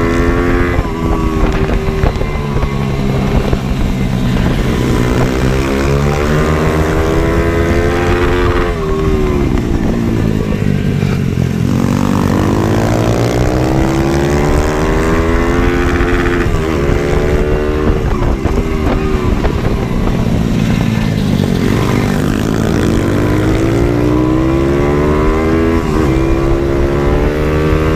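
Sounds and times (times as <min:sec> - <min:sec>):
small motorbike engine revving: 0:00.0 - 0:27.9.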